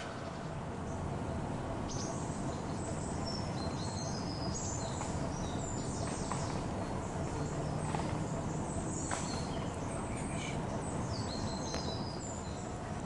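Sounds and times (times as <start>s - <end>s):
low outdoor rumble: 0.0s - 13.0s
small birds chirping: 0.0s - 13.0s.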